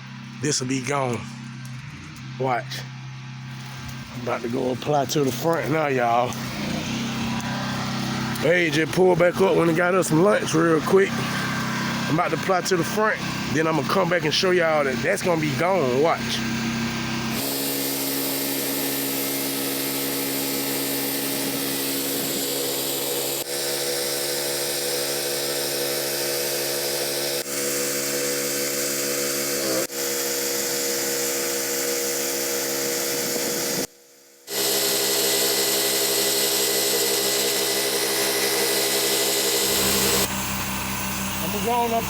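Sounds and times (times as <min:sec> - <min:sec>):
pressure washer pump running: 0:00.0 - 0:42.0.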